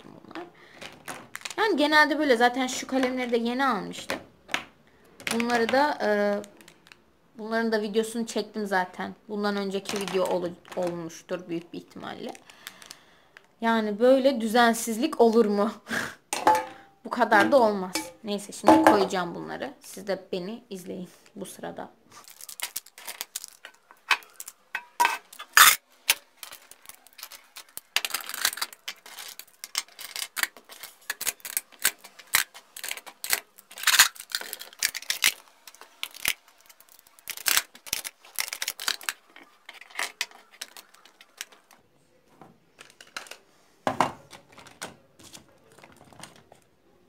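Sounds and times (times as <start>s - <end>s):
plastic pens clicking and clattering: 2.7s - 7.0s, 9.7s - 13.5s, 22.3s - 41.8s, 42.8s - 43.4s, 44.2s - 46.7s.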